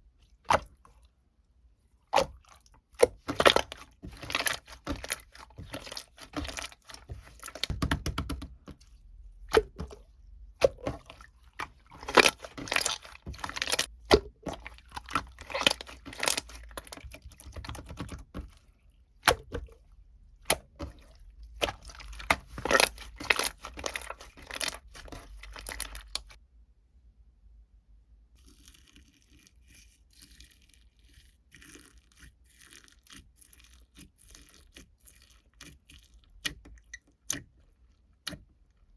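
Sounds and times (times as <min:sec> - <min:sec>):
crisp crunching and crackling: 0:03.0 - 0:07.8, 0:10.6 - 0:18.7, 0:20.5 - 0:26.4.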